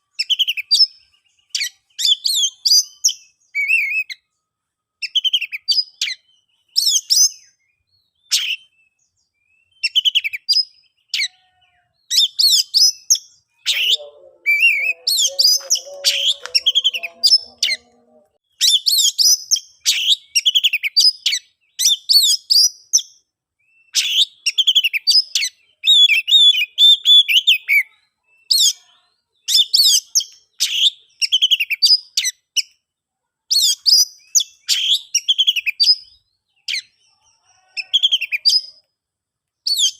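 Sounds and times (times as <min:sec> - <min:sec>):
bird singing whistled phrases: 0:00.2 - 0:04.2, 0:05.0 - 0:11.3, 0:12.1 - 0:17.9, 0:23.7 - 0:28.8, 0:33.5 - 0:36.9, 0:39.7 - 0:39.9.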